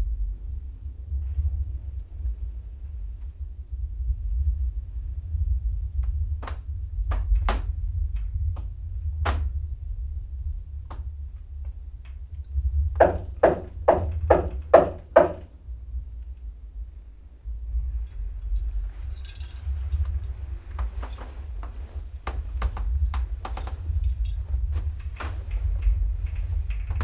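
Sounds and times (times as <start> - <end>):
low steady rumble: 0.0 - 27.0
knocking: 6.4 - 7.7, 8.6 - 9.5, 12.9 - 15.5, 20.7 - 27.0.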